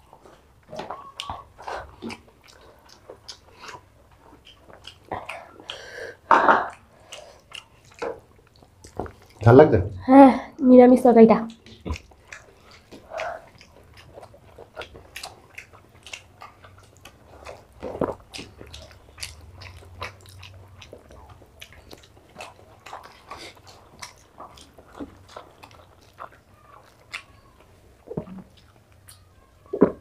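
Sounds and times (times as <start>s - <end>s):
wet chewing and smacking: 0.0s - 9.6s, 11.5s - 30.0s.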